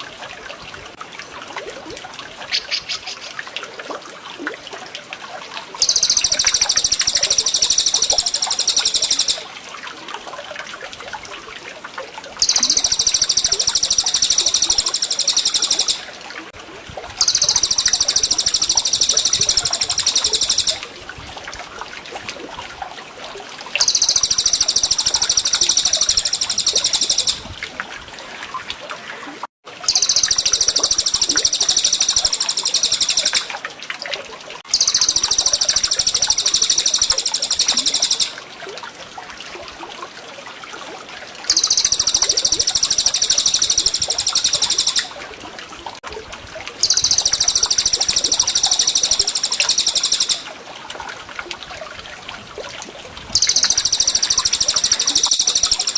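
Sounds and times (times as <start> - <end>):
water trickling: 0.0 - 55.9
songbird high rolling trill: 2.4 - 3.4, 5.8 - 9.5, 12.4 - 16.1, 17.2 - 20.8, 23.8 - 27.5, 29.9 - 33.5, 34.7 - 38.4, 41.5 - 45.1, 46.8 - 50.5, 53.4 - 55.9.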